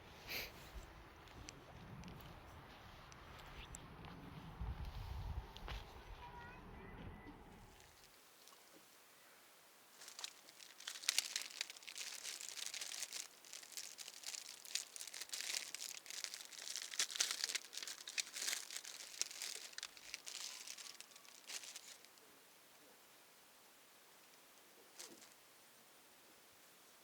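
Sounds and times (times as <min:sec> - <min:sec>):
plastic bag crinkling: 0:09.9 - 0:22.2, 0:25.0 - 0:25.3.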